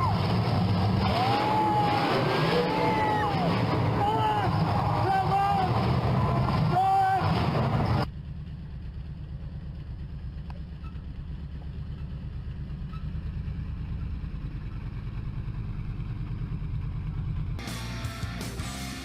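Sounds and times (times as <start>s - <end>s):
truck engine running: 0.0s - 19.0s
rock guitar music: 17.6s - 19.0s.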